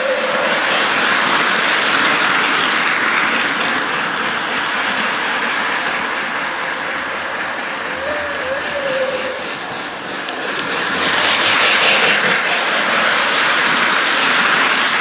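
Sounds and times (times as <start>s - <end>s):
model train rushing hiss and rumble: 0.0s - 15.0s.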